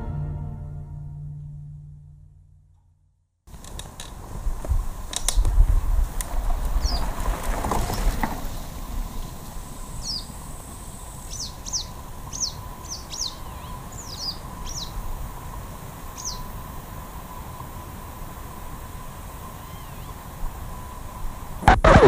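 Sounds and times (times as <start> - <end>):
bicycle passing: 3.5 - 21.6
small birds chirping: 5.0 - 5.4, 6.7 - 7.2, 7.8 - 16.8, 19.4 - 21.0.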